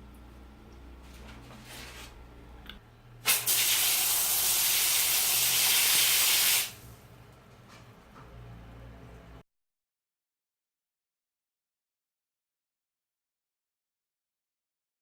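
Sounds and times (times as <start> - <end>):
shower head spraying water: 3.3 - 6.9.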